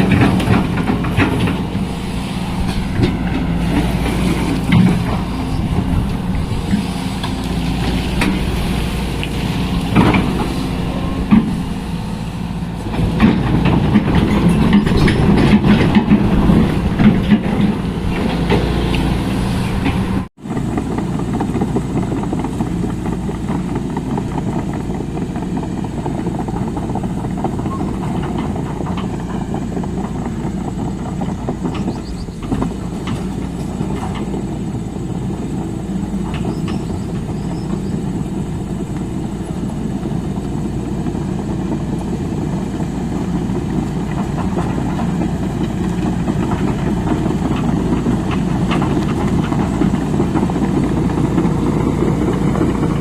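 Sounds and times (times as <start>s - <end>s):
sharp knocks and clanks: 0.0s - 1.8s, 12.9s - 18.8s, 19.7s - 34.5s
excavator diesel engine under load: 0.0s - 53.0s.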